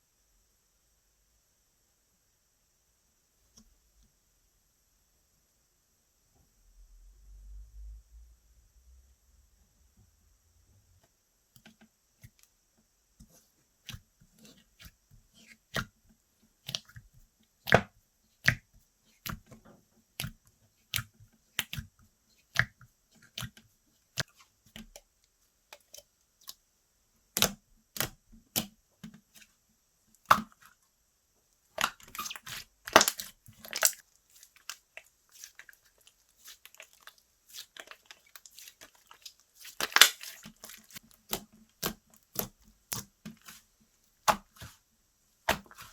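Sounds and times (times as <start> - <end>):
slime clicking and popping: 31.8 - 34.0, 39.8 - 43.1.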